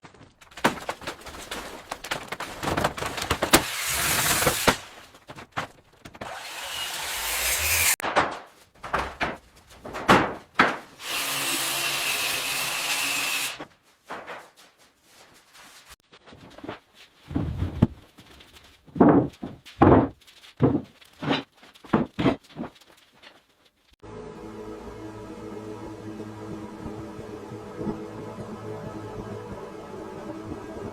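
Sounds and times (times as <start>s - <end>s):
scraping and rubbing: 0.7s - 6.2s
power tools running: 6.2s - 8.0s, 11.0s - 13.6s.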